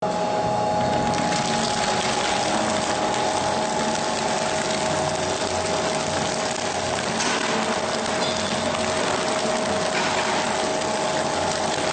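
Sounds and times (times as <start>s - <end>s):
two-tone machine whine: 6.7s - 11.9s.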